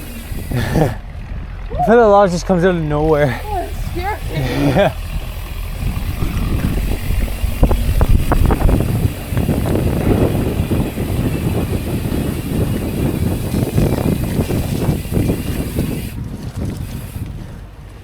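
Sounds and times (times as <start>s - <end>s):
bike rattles and knocks: 0.0s - 18.0s
mountain bike tyres rumbling: 0.0s - 18.0s.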